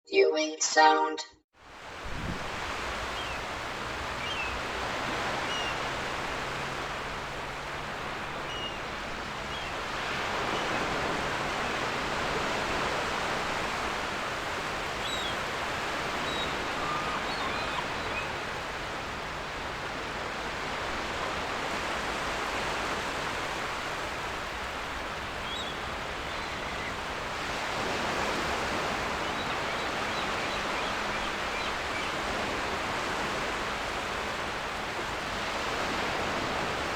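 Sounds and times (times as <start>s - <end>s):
ocean surf washing: 1.8s - 36.9s
seagull calls: 16.2s - 18.6s.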